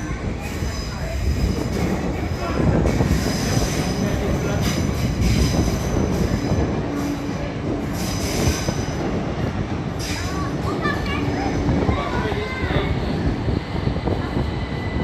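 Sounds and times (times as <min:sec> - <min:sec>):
train rumbling on track: 0:00.0 - 0:15.0
train wheels squealing: 0:03.1 - 0:09.1.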